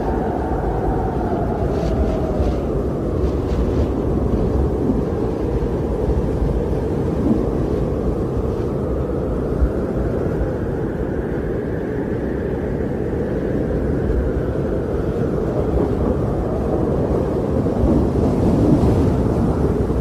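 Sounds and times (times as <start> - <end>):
wind blowing in snowstorm: 0.0 - 20.0.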